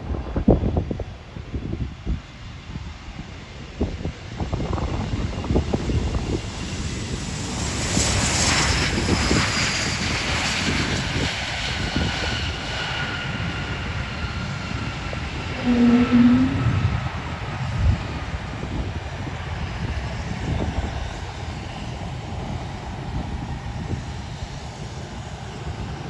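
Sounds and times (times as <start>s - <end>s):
aircraft passing by: 0.0s - 26.0s
short low tone: 15.5s - 16.9s.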